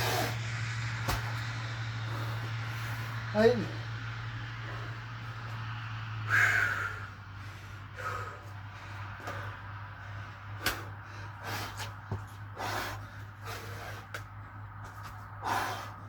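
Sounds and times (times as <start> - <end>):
person breathing hard: 0.0 - 0.4, 4.5 - 16.0
thuds of movement: 0.0 - 3.0, 10.4 - 15.6
steady low hum: 0.0 - 16.0.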